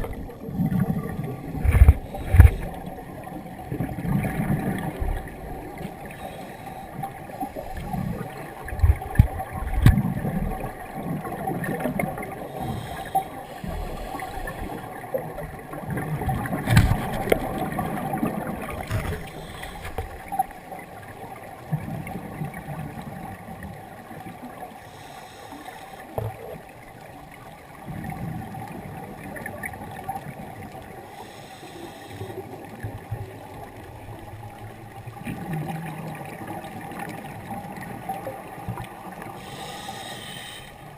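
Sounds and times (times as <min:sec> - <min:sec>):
bubbles gurgling underwater: 0:00.0 - 0:06.2, 0:06.9 - 0:13.3, 0:14.4 - 0:24.6, 0:26.2 - 0:31.0, 0:32.4 - 0:39.4
hissy breaths through regulator: 0:12.5 - 0:14.9, 0:19.2 - 0:20.2, 0:24.8 - 0:26.1, 0:31.1 - 0:32.5, 0:39.4 - 0:40.9.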